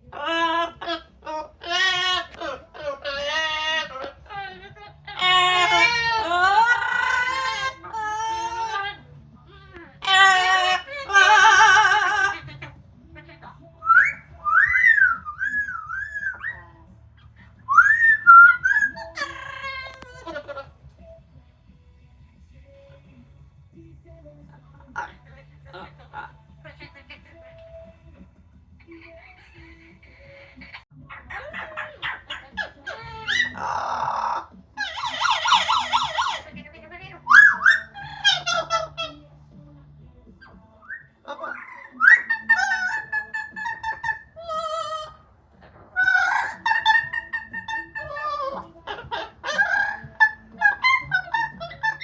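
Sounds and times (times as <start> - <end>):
parrot warbling and whistling: 0.0 - 9.0, 10.0 - 16.9, 17.6 - 20.7, 30.7 - 39.2, 40.4 - 45.2, 45.8 - 52.0.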